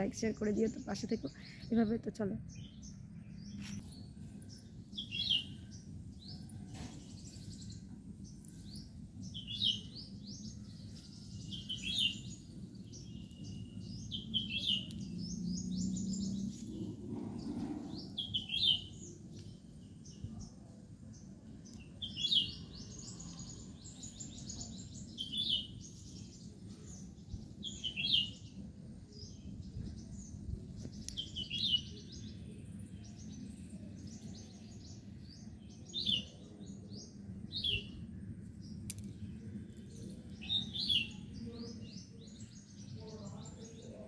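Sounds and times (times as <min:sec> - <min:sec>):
small bird chirping: 0:00.0 - 0:20.6, 0:21.5 - 0:44.0
low background rumble: 0:00.0 - 0:21.8.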